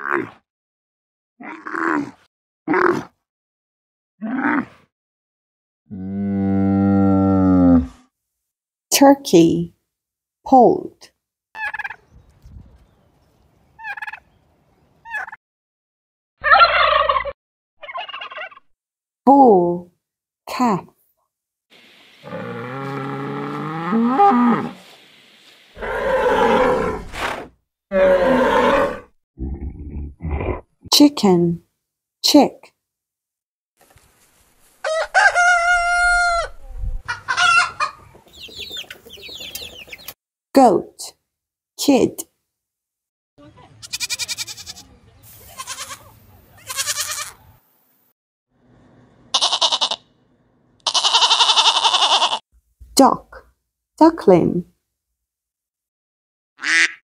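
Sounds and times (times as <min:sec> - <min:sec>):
turkey gobbling: 0:11.6 - 0:12.0, 0:13.8 - 0:14.2, 0:16.4 - 0:18.6, 0:34.8 - 0:40.1, 0:56.6 - 0:57.0
rooster crowing: 0:34.8 - 0:36.6.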